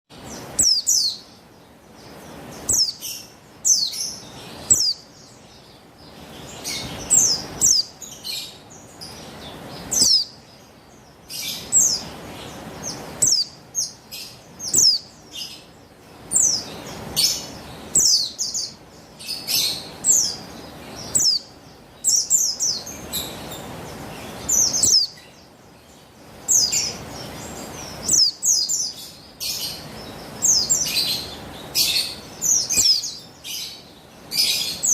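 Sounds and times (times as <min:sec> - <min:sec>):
bird calling with high chirps: 0:00.1 - 0:34.9
steady hiss: 0:00.1 - 0:34.9.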